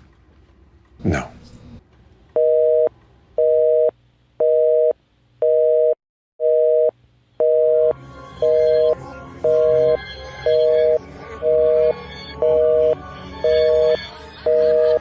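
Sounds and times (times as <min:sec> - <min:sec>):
telephone busy signal beeps: 0:09.5 - 0:15.0.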